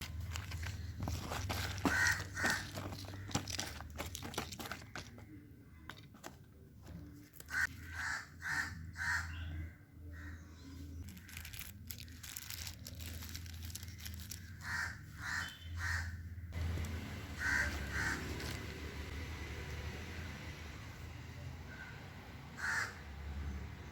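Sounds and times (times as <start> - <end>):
rustling handling noises: 0.0 - 7.8, 10.8 - 14.9, 16.6 - 19.7
bird calling: 1.6 - 3.8, 14.3 - 19.1, 21.7 - 23.2
steady low hum: 16.4 - 23.9.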